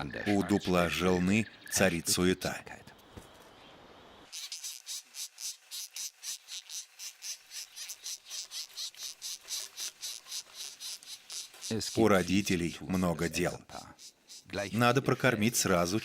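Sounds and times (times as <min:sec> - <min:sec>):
nestlings begging buzzing chorus: 0:04.3 - 0:16.0.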